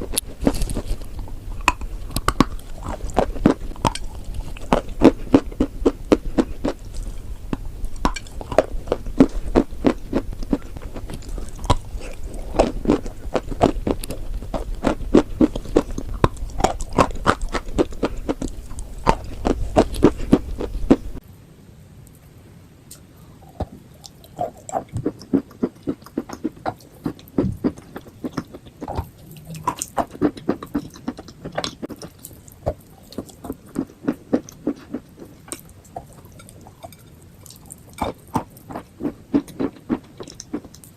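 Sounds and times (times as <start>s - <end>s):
crunchy chewing: 0.0s - 21.2s, 22.9s - 40.9s
low background hum: 0.0s - 40.9s.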